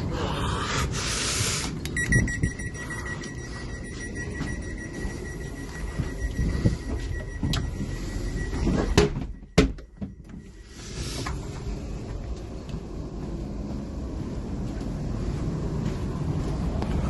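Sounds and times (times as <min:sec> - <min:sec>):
train running rumble: 0:10.2 - 0:17.0.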